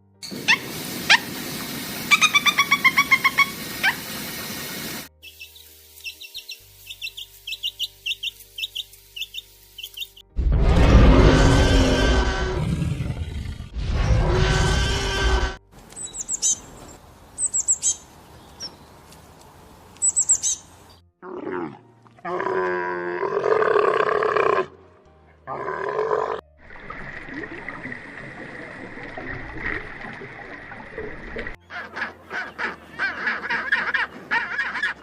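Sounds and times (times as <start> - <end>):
high bird chirps: 5.2 - 10.3, 16.0 - 18.8, 20.0 - 21.0.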